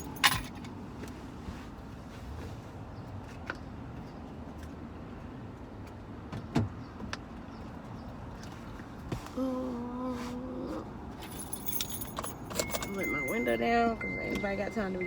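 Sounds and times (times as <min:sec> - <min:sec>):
clicks and knocks on car: 0:05.8 - 0:07.3.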